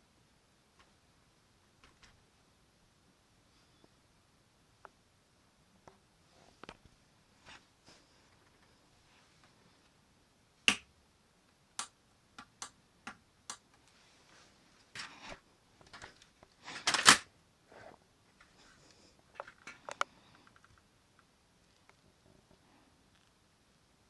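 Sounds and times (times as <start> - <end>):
plastic rattle: 15.8 - 17.3
toy gun plastic clicks and snaps: 16.8 - 17.3.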